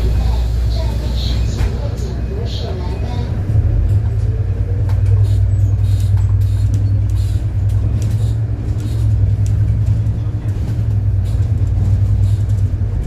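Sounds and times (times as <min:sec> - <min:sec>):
bus engine droning: 0:00.0 - 0:13.0.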